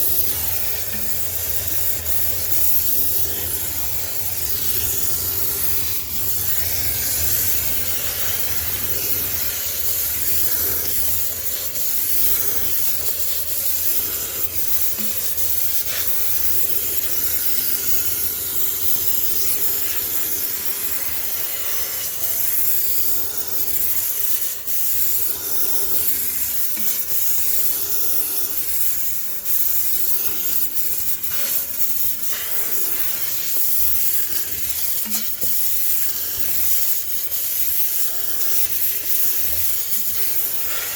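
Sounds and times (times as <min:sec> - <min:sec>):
steam cleaner hissing jet: 0:00.0 - 0:40.9.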